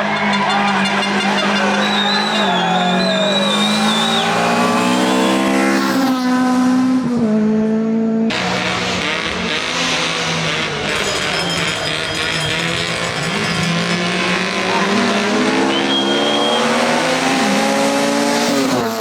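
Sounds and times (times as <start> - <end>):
tyre squeal: 0.0 - 5.7, 10.6 - 17.0
rally car engine revving: 0.0 - 19.0
rough rally car engine: 0.0 - 19.0.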